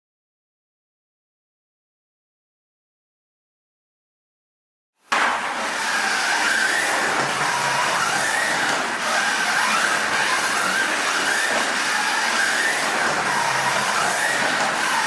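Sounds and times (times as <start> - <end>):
small electric motor whining: 5.6 - 15.0.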